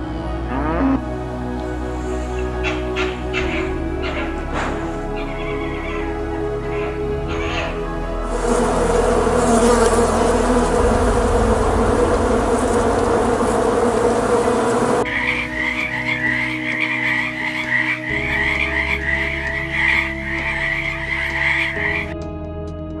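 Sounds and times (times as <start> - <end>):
bees buzzing: 0.0 - 22.2
frog croaking: 2.3 - 7.9, 14.9 - 22.1.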